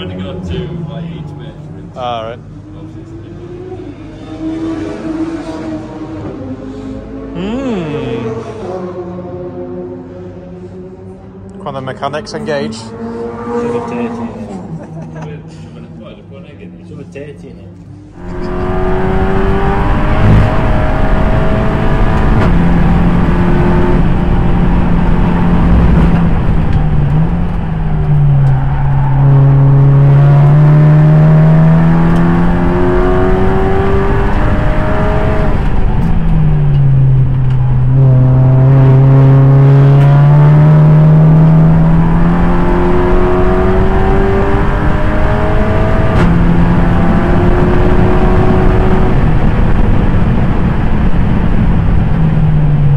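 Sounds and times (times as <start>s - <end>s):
race car engine running hard: 18.1s - 52.9s.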